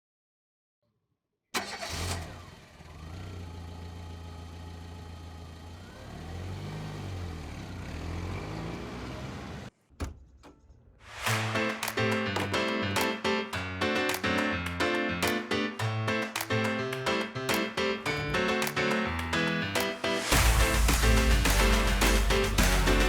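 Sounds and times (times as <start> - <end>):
diesel engine starting and idling: 1.6 - 9.7
engine revving: 1.6 - 9.7.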